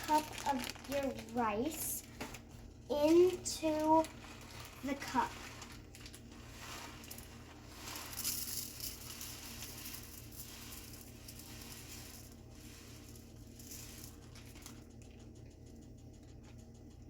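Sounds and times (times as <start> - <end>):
rice grains pouring into a cup: 3.0 - 14.9.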